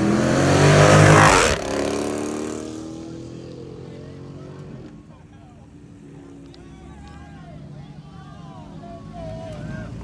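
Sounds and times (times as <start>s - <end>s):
car engine revving: 0.0s - 3.1s.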